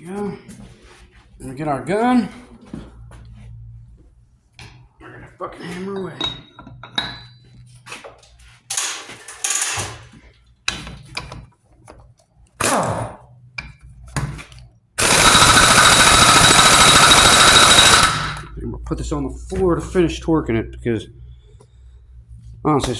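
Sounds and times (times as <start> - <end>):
tools and parts clattering: 8.7 - 10.3, 15.0 - 18.5
impact wrench rattling: 15.0 - 18.5.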